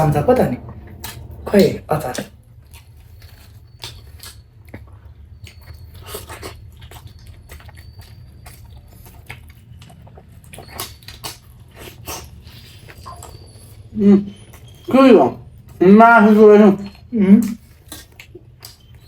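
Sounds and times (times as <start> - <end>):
low steady hum: 0.0 - 19.0
chewing mouth smacks: 2.7 - 13.4, 17.4 - 19.0.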